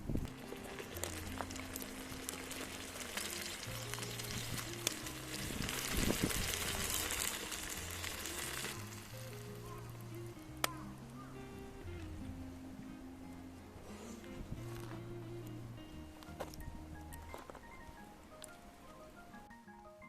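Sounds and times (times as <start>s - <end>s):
background music with bass line: 0.0s - 20.0s
food sizzling in a frying pan: 0.2s - 12.0s.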